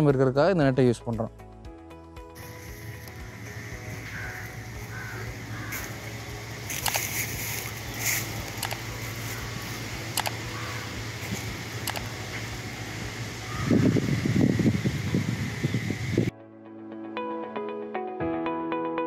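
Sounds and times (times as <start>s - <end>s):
steady low hum: 2.4s - 16.3s
crows cawing: 3.8s - 8.3s, 9.1s - 11.5s, 13.4s - 14.2s.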